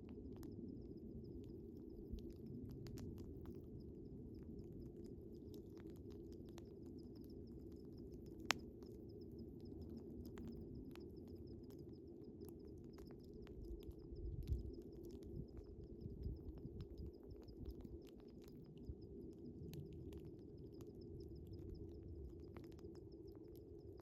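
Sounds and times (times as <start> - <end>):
crickets chirping: 0.2 - 24.0
wood fire crackling and popping: 0.3 - 19.0.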